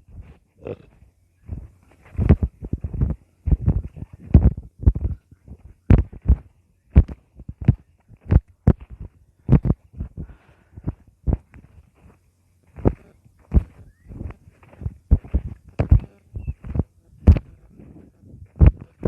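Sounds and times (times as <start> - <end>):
low thumps and knocks: 1.5 - 11.5.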